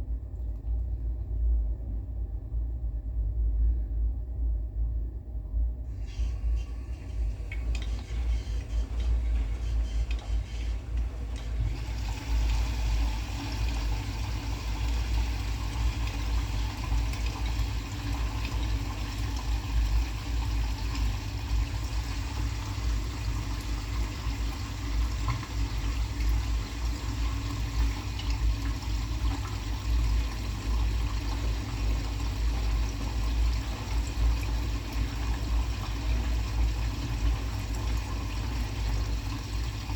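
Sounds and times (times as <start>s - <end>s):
washing machine filling with water: 5.9s - 39.9s.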